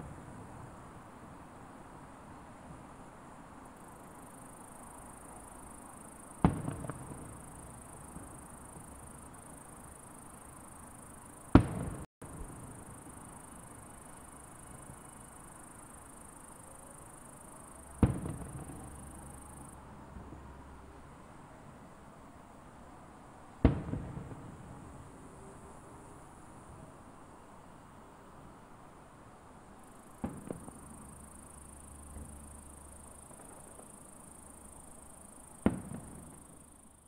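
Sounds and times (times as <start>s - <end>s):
firework shells bursting: 17.8s - 19.4s.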